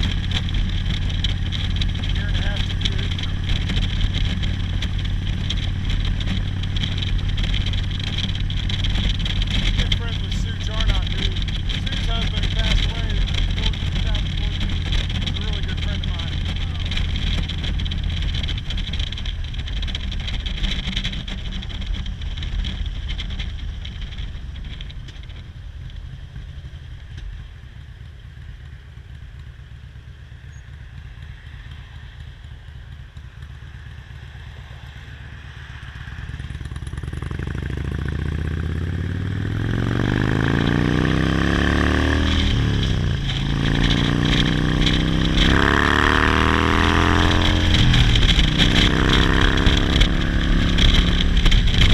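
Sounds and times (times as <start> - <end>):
motorcycle engine revving: 0.0 - 51.9
motorcycle gear change: 36.9 - 51.9.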